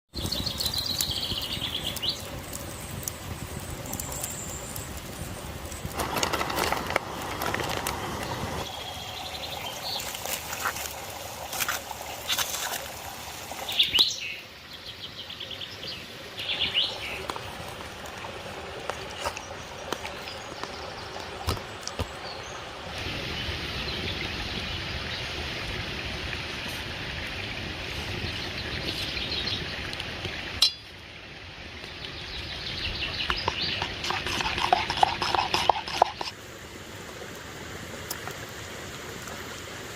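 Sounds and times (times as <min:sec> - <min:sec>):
small birds chirping: 0:00.1 - 0:05.9, 0:31.8 - 0:36.3
stream flowing: 0:00.2 - 0:39.9.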